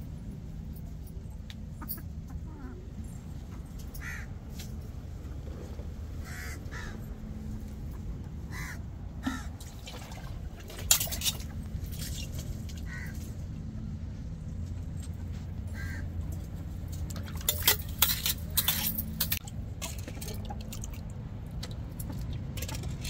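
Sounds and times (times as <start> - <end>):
birds giving harsh calls: 6.2 - 7.1, 8.4 - 9.6, 12.8 - 13.2.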